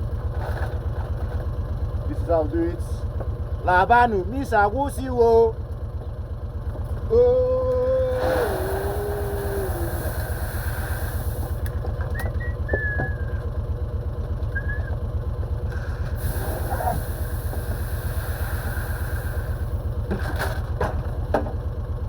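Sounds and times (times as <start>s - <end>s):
engine idling: 0.0s - 22.0s
short high squeaks: 12.2s - 13.4s.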